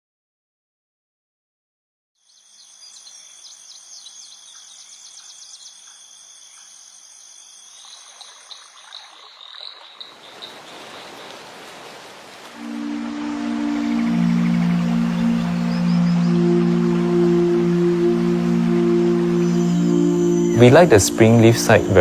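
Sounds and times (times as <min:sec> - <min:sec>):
frogs calling: 0:02.2 - 0:22.0
insects droning: 0:02.2 - 0:22.0.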